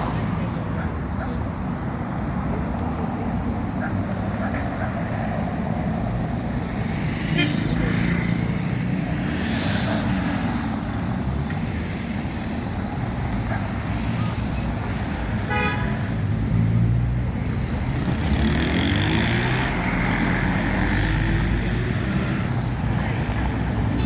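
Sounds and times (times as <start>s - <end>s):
traffic rumble: 0.0s - 24.0s
car horn toot: 15.5s - 16.0s.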